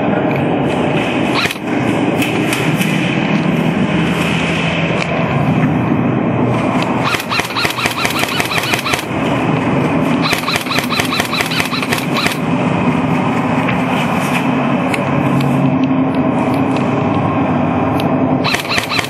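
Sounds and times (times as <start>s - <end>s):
steady background noise: 0.0s - 19.0s
airsoft gun firing full auto: 7.0s - 9.1s, 10.2s - 12.4s, 18.4s - 19.0s.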